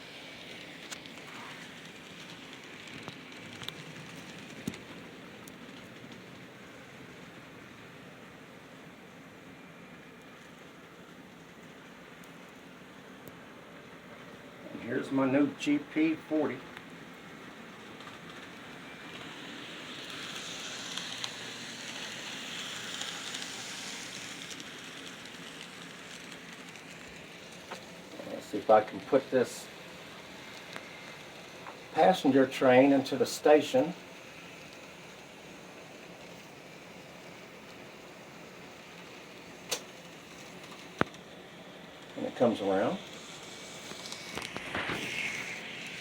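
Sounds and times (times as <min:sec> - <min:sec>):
model train wheels on rails: 0:00.0 - 0:46.0
sharp clicks: 0:39.7 - 0:39.9.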